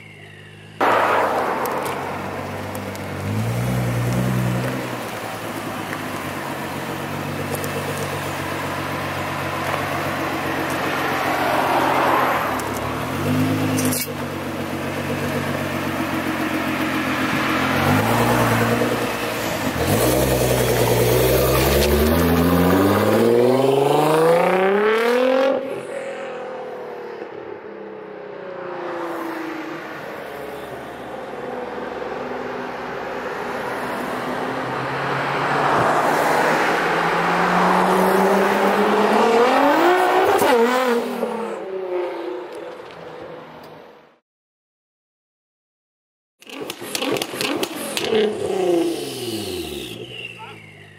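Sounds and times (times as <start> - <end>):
car engine revving and accelerating: 0.8 - 5.9, 14.7 - 27.5, 31.6 - 42.7, 46.4 - 50.9.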